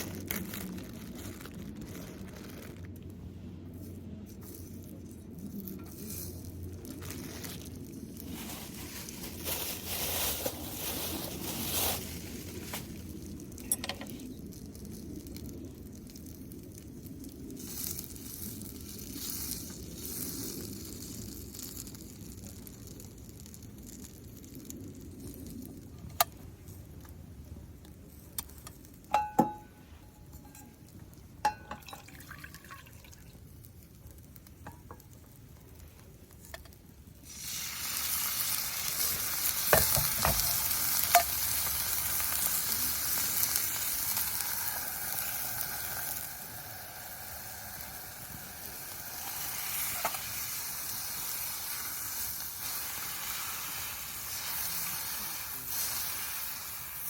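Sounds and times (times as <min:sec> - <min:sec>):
food sizzling in a pan: 0:37.2 - 0:57.0.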